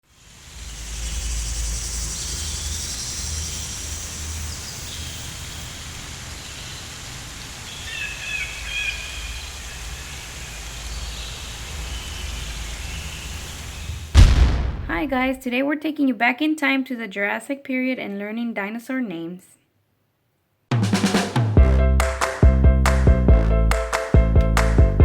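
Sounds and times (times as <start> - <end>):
steady hiss like rain: 0.0 - 14.3
bird calls: 7.6 - 14.1
low rumble: 13.9 - 15.4.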